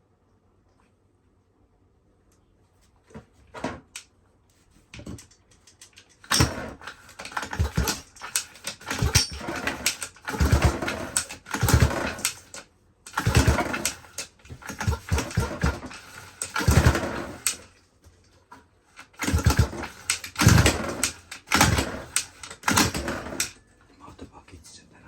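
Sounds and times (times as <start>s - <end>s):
small engine cranking and sputtering: 5.9s - 17.8s, 18.9s - 23.6s.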